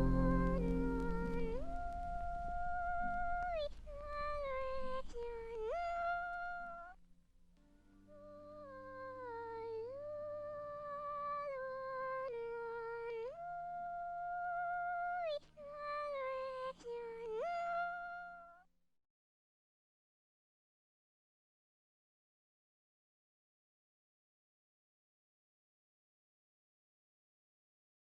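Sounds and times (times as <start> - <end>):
faint low drone: 0.0 - 5.0
woman singing wordless notes: 0.0 - 6.9, 8.0 - 18.4.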